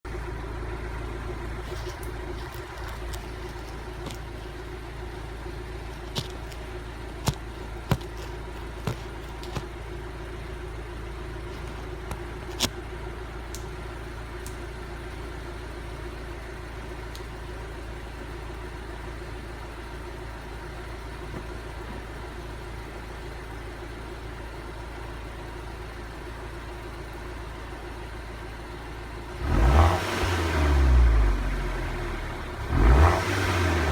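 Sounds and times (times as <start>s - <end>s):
car exhaust idling: 0.1s - 33.9s
engine revving: 29.3s - 33.9s.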